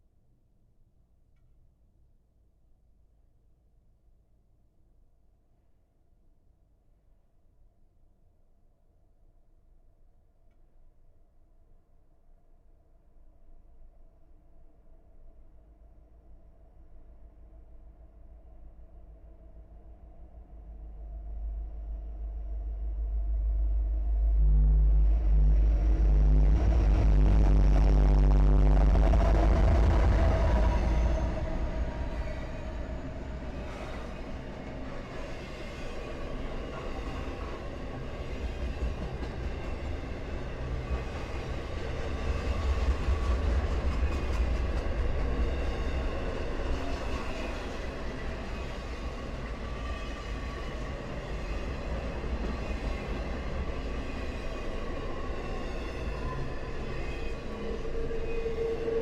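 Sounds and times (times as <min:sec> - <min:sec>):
locomotive rumble: 0:22.7 - 0:34.4
high-pitched wheel squeal: 0:54.7 - 0:59.0.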